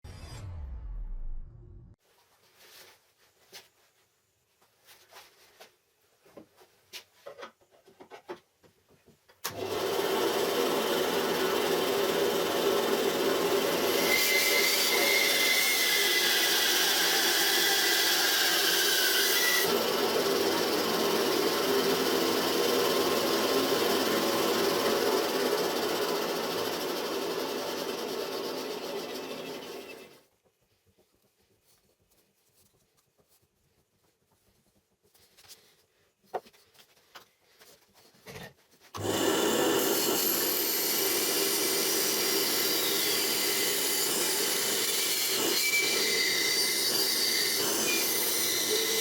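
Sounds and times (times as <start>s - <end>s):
band saw running: 9.5s - 30.2s, 39.0s - 49.0s
saw blade cutting with squeal: 13.9s - 19.7s, 28.7s - 30.2s, 39.8s - 49.0s.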